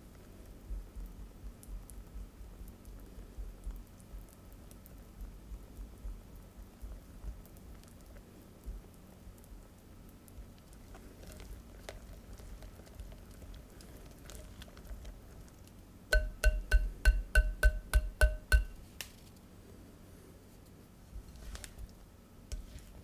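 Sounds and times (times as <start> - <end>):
batter being stirred: 6.7 - 18.8, 21.2 - 23.0
utensil tapping metal bowl: 16.1 - 18.8.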